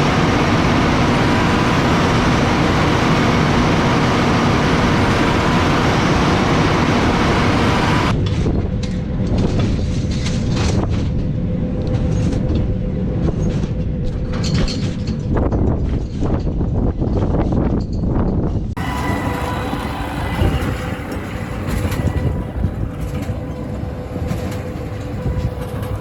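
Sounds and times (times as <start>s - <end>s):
tractor and baler machinery running: 0.0s - 15.2s, 18.8s - 26.0s.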